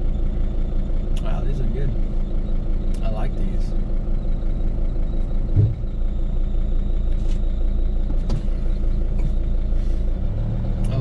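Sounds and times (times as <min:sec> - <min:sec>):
van engine running: 0:00.0 - 0:11.0
low thump: 0:05.5 - 0:05.9.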